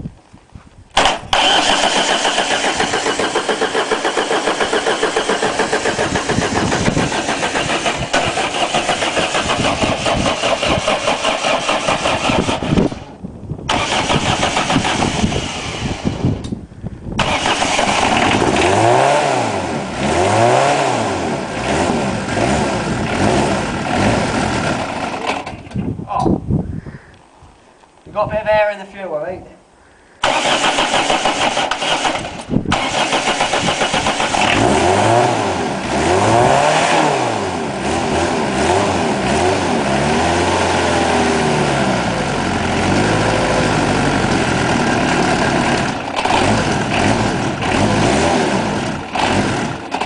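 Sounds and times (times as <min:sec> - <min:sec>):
starter motor cranking: 0:01.0 - 0:13.1, 0:13.7 - 0:16.2, 0:17.2 - 0:18.8, 0:30.2 - 0:34.8, 0:43.1 - 0:48.2
diesel engine running unevenly: 0:01.4 - 0:13.1, 0:17.2 - 0:25.6, 0:31.8 - 0:50.0.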